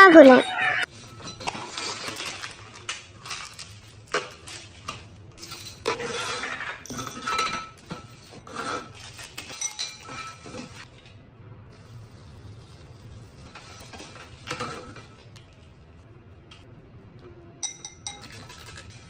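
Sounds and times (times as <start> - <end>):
dishes and cutlery clinking: 0.2 - 10.9, 17.6 - 19.0.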